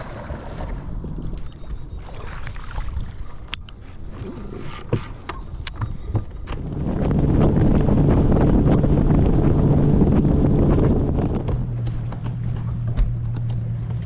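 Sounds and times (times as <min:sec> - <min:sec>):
wind and water rumble: 0:00.0 - 0:14.0
sharp clicks and knocks: 0:11.4 - 0:14.0.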